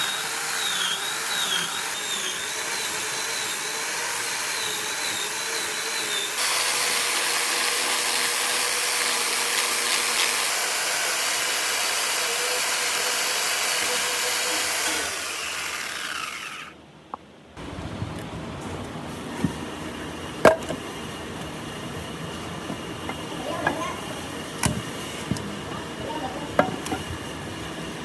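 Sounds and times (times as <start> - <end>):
power tool whining: 0.0 - 16.8, 20.3 - 27.3.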